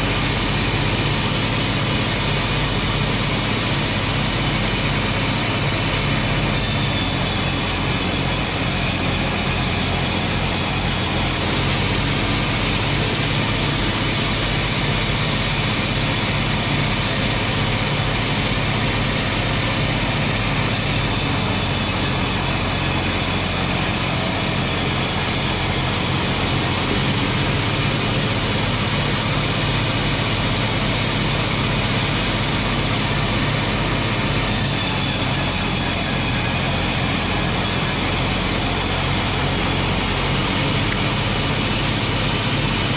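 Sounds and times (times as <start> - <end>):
high hissing sawing: 6.1 - 42.9.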